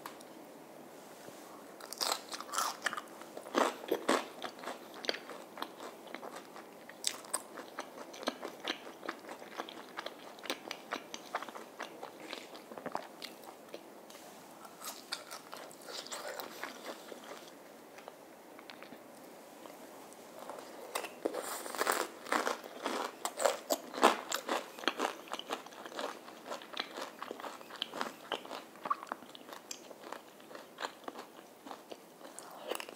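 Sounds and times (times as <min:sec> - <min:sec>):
crunching of crispy fried batter: 0:01.8 - 0:13.1, 0:20.4 - 0:32.9.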